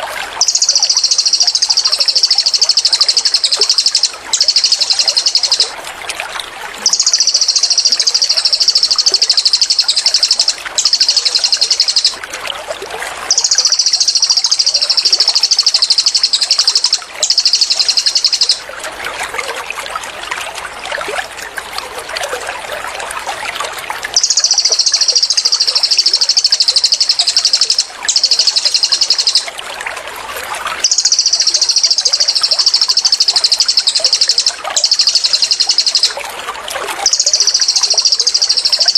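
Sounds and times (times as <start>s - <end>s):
songbird high-pitched trills: 0.0s - 5.8s, 6.8s - 12.3s, 13.3s - 18.7s, 24.1s - 29.5s, 30.8s - 36.2s, 37.0s - 38.9s
trickle of running water: 0.0s - 38.9s.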